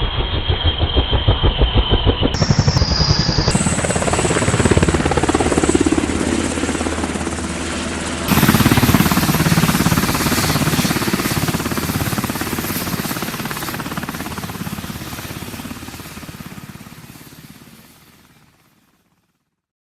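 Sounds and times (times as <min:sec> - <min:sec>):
helicopter rotor chop: 0:00.0 - 0:18.9.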